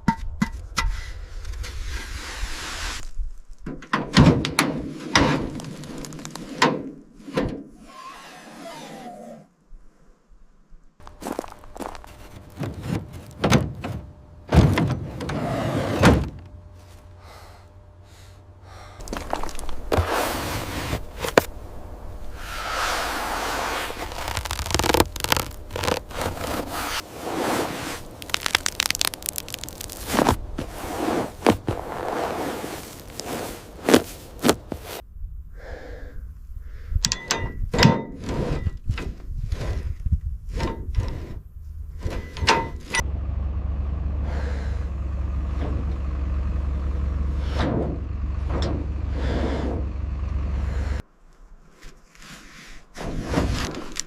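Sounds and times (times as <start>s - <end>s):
steady low hum: 11.0s - 37.0s
scrapes knocks and thuds: 11.1s - 17.1s, 29.0s - 35.0s.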